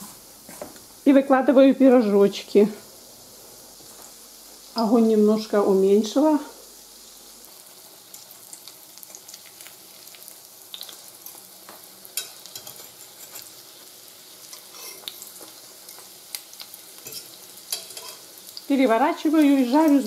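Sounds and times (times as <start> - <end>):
pies sizzling in oil: 0.0 - 20.0
fork clicking and scraping pan: 12.2 - 13.5, 14.5 - 15.2, 17.0 - 18.2.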